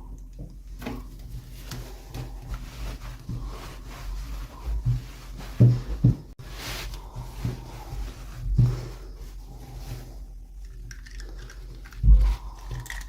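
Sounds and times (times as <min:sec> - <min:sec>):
toy packaging clicks and rustles: 0:10.6 - 0:13.0.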